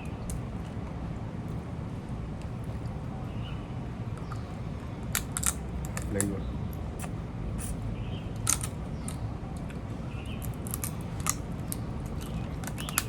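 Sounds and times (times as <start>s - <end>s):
low steady hum: 0.0s - 13.0s
shells cracking and snapping: 5.0s - 6.4s, 8.4s - 9.8s, 10.4s - 13.0s.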